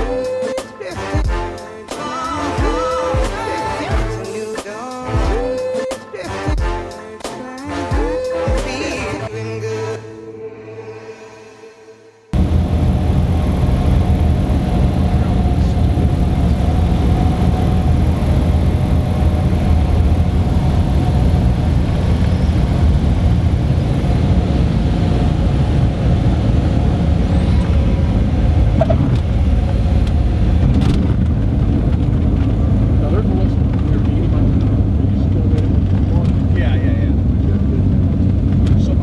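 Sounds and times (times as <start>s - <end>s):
propeller plane engine drone: 12.4s - 39.0s.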